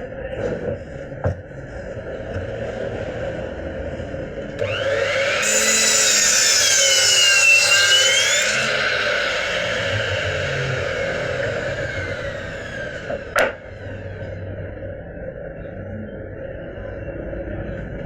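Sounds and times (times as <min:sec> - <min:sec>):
power tool whining on wood: 0:04.6 - 0:14.3.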